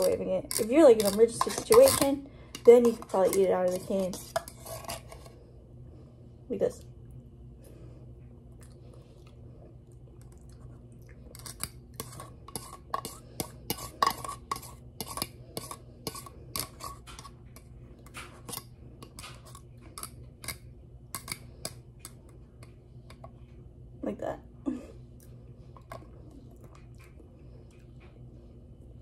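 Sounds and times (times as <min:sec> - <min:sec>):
metal utensil scraping tin can: 0:00.0 - 0:05.3.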